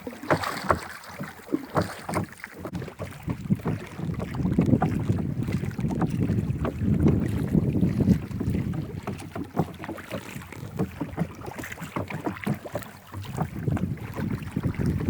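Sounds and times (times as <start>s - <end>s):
boat knocking and splashing: 0.0s - 15.0s
wind buffeting microphone: 2.7s - 11.5s, 13.1s - 15.0s.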